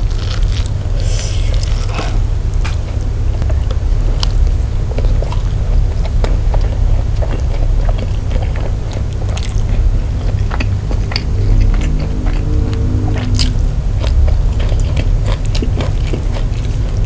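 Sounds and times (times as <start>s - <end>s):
steady low rumble: 0.0s - 17.0s
wet chewing mouth clicks: 4.2s - 17.0s.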